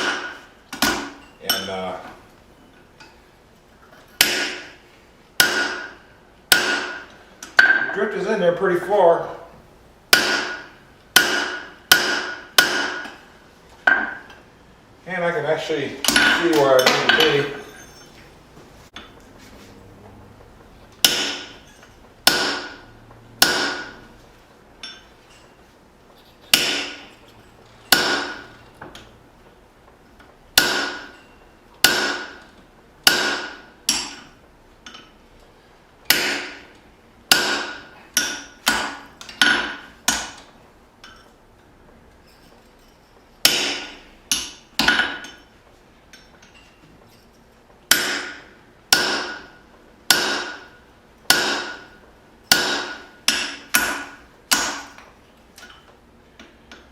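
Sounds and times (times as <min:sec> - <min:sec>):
hammer striking metal: 0:00.0 - 0:01.8, 0:04.2 - 0:04.8, 0:05.4 - 0:08.0, 0:10.1 - 0:13.2, 0:13.8 - 0:14.4, 0:16.0 - 0:18.1, 0:21.0 - 0:24.2, 0:24.8 - 0:25.5, 0:26.5 - 0:27.3, 0:27.9 - 0:29.1, 0:30.6 - 0:35.1, 0:36.1 - 0:40.4, 0:43.4 - 0:45.5, 0:47.9 - 0:55.8.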